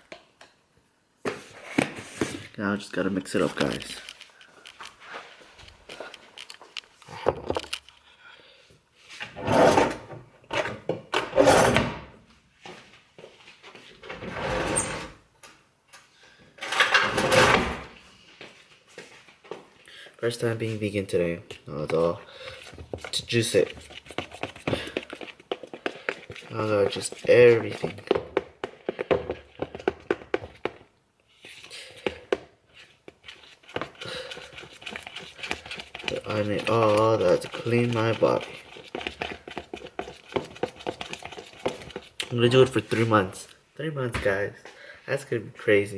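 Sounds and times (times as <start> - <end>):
handling clicks and knocks: 3.4 - 5.0.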